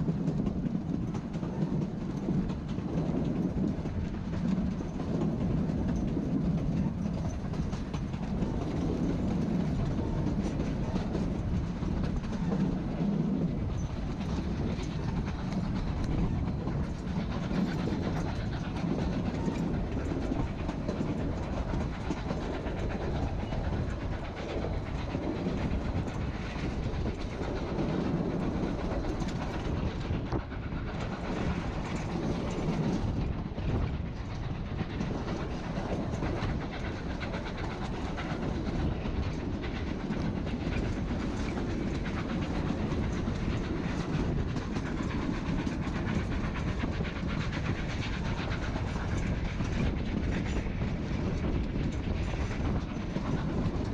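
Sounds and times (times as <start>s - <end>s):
train rumbling along track: 0.0s - 53.9s.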